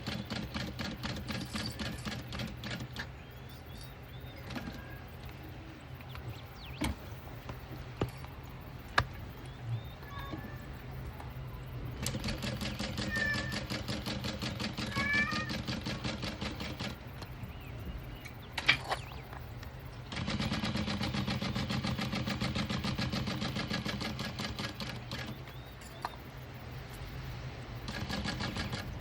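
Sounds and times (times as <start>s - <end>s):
animal calls: 0.0s - 7.4s, 8.1s - 19.4s.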